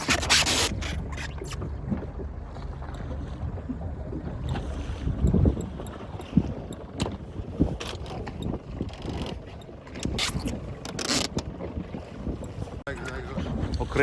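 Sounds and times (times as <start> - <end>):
boat low rumble: 0.0 - 14.0
wind on microphone: 3.2 - 14.0.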